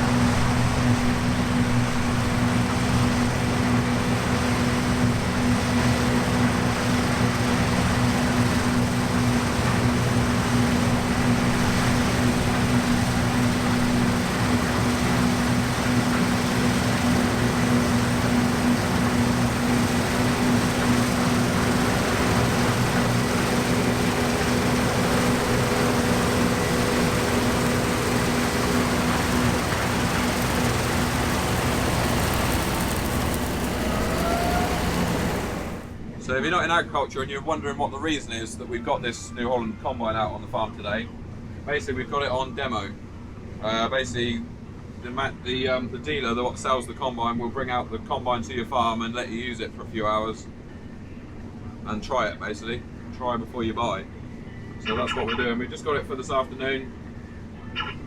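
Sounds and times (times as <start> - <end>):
combine harvester engine drone: 0.0 - 36.0, 54.1 - 58.0.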